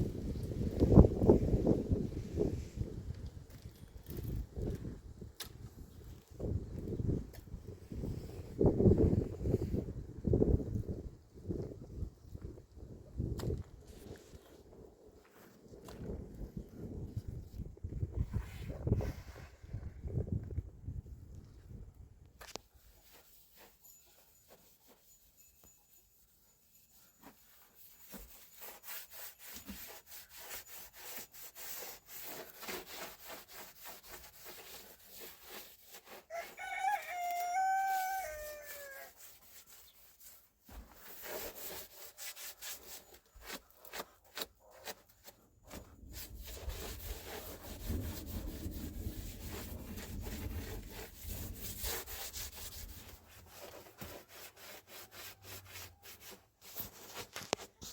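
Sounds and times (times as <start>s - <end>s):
scraping strokes: 22.4s - 25.8s, 26.6s - 57.9s
rooster crowing: 36.3s - 39.2s.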